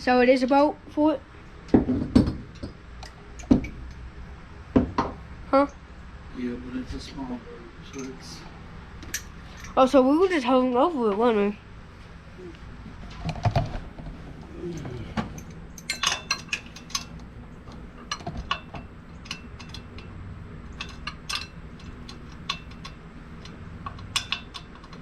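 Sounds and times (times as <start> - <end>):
metal tools clinking: 7.8 - 8.4, 9.0 - 9.9, 14.7 - 25.0.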